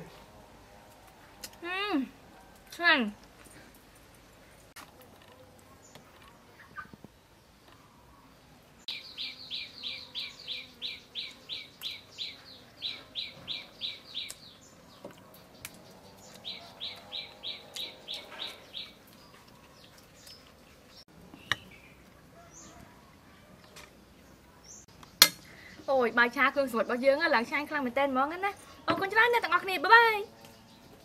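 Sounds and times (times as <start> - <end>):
bird chirping: 5.8 - 27.2, 28.6 - 31.0.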